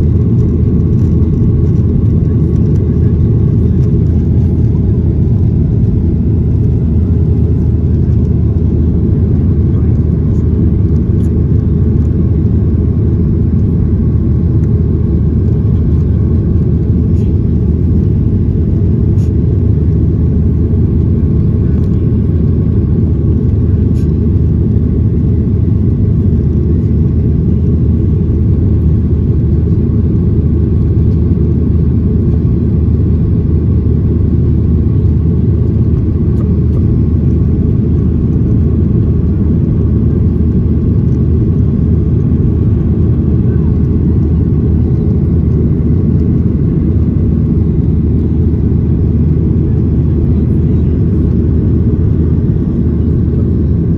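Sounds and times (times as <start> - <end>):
airliner cabin engine rumble: 0.0 - 53.9.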